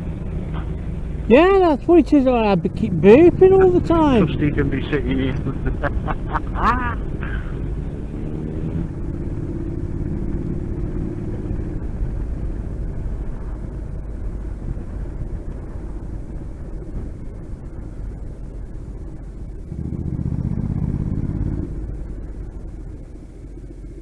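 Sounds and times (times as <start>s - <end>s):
motorcycle engine running: 0.0s - 24.0s
wind and road noise: 0.0s - 24.0s.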